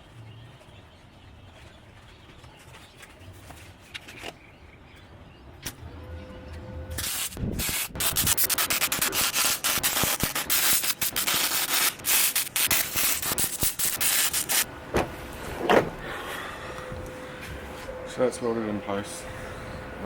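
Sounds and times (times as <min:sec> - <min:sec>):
arc welder crackling sizzle: 0:06.9 - 0:14.7.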